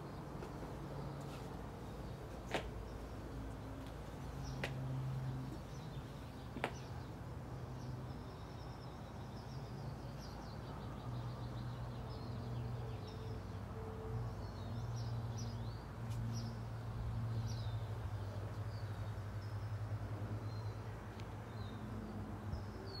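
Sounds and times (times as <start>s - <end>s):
small birds chirping: 0.1s - 13.4s.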